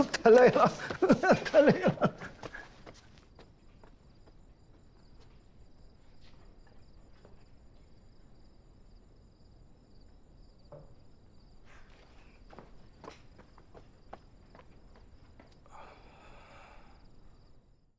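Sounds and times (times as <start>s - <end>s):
soft footsteps: 0.0s - 8.0s, 11.6s - 15.7s
crickets chirping: 0.0s - 17.9s.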